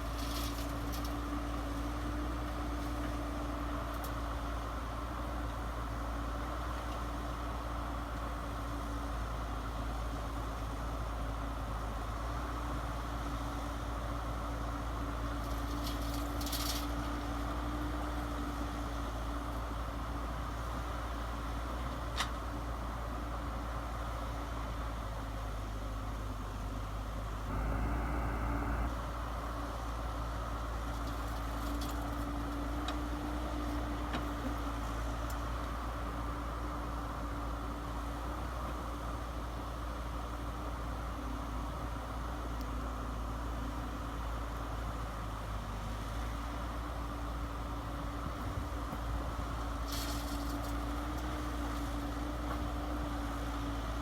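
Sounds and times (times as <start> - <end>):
model truck motors whining: 27.5 - 29.3.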